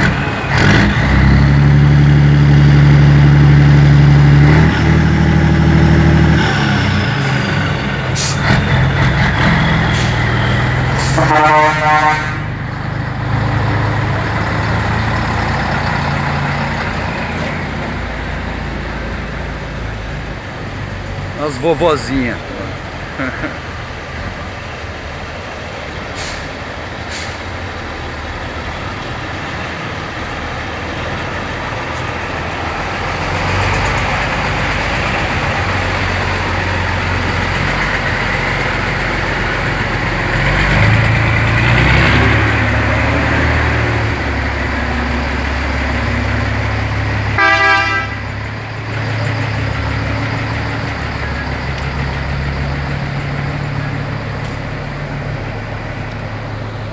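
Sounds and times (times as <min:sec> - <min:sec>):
truck diesel engines: 0:00.0 - 0:56.9
truck horn blast: 0:11.0 - 0:12.5, 0:47.4 - 0:48.3.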